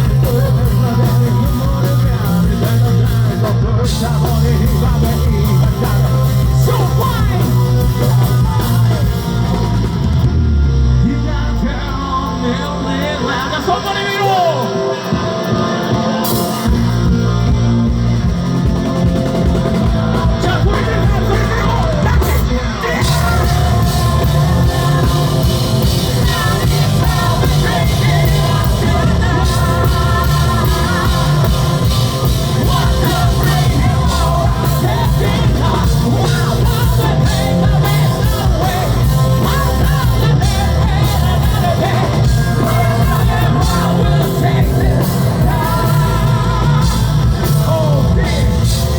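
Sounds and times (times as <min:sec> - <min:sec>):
person singing and shouting: 0:00.0 - 0:09.8, 0:19.9 - 0:48.9
live rock band playing: 0:00.0 - 0:48.9.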